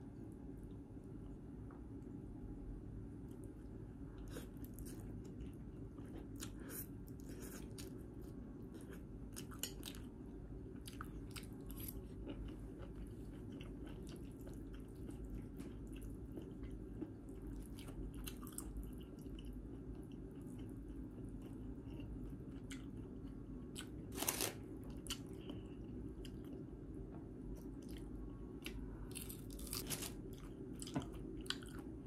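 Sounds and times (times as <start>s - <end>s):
chewing noodles: 10.8s - 26.6s.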